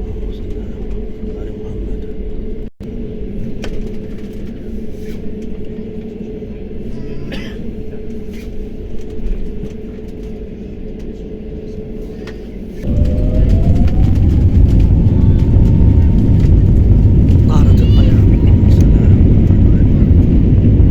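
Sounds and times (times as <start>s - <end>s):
airliner cabin rumble: 0.0s - 20.9s
jet engines spooling up: 12.8s - 20.9s.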